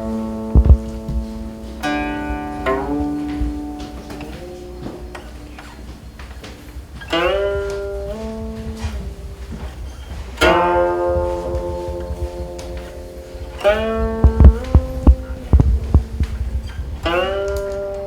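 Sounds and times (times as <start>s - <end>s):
zither notes plucked and sliding: 0.0s - 18.0s.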